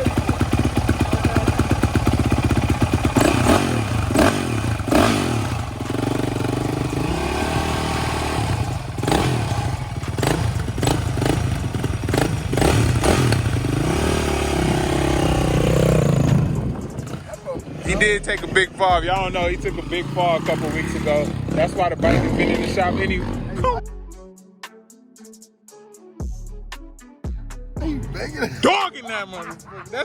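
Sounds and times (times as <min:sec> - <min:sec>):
dirt bike engine revving: 0:00.0 - 0:23.8.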